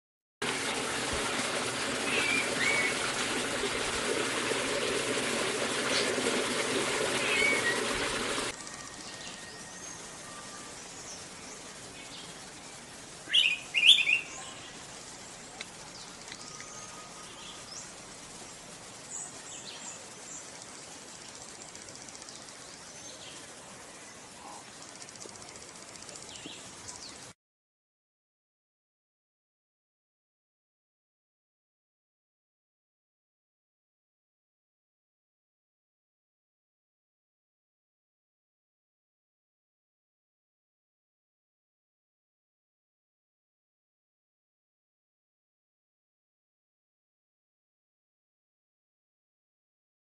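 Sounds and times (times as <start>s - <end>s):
faint bird chirps: 8.6s - 18.0s.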